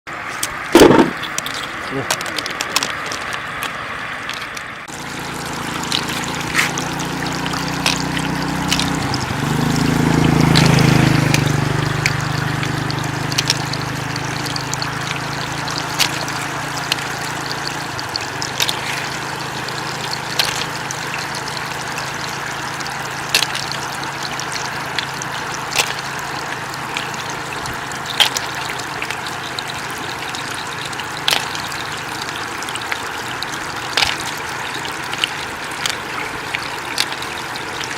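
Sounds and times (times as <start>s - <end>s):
floodwater flowing and trickling: 0.1s - 37.9s.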